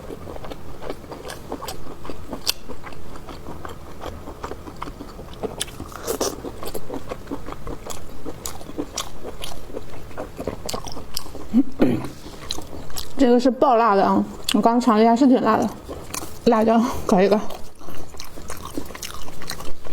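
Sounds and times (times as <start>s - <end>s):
person chewing: 0.0s - 13.2s, 14.2s - 19.9s.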